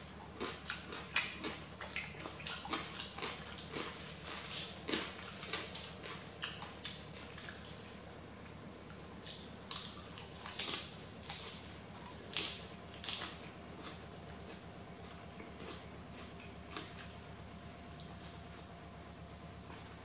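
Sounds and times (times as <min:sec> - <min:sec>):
wet chewing noodles: 0:00.3 - 0:07.8, 0:09.2 - 0:17.2.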